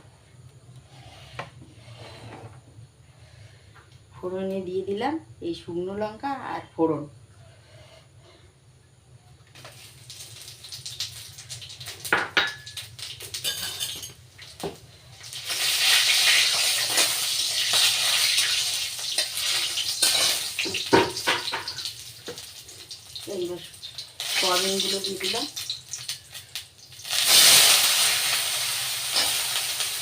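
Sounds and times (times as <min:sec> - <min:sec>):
food sizzling in hot oil: 0:09.5 - 0:30.0.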